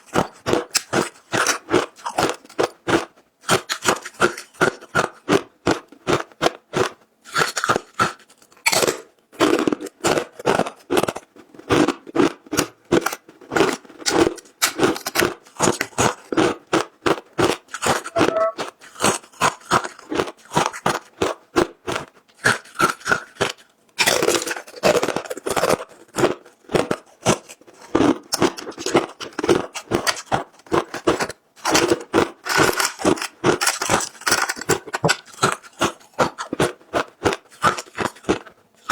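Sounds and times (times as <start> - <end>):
person crunching frozen ice: 24.0 - 25.6.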